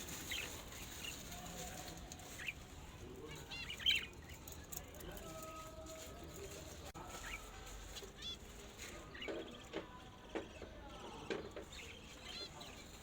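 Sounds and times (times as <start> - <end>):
pet birds chirping: 2.0 - 4.9, 7.0 - 13.0.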